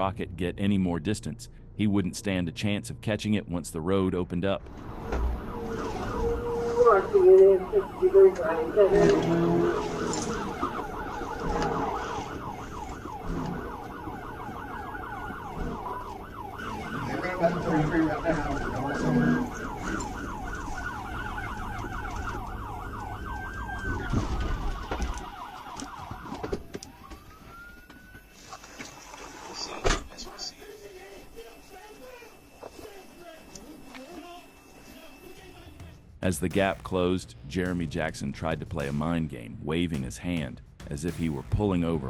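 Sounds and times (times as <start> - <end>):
car engine and road rumble: 4.5 - 30.5
police siren: 4.7 - 36.0.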